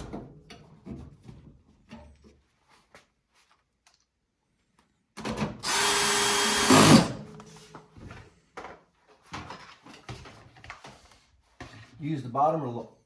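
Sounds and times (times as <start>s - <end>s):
power drill driving screw: 5.6s - 7.3s.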